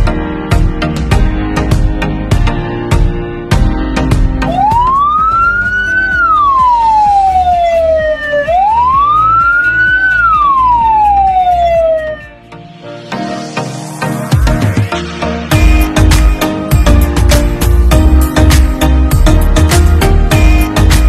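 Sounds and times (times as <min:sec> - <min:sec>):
music with steady beat: 0:00.0 - 0:21.0
siren wailing: 0:04.4 - 0:12.5.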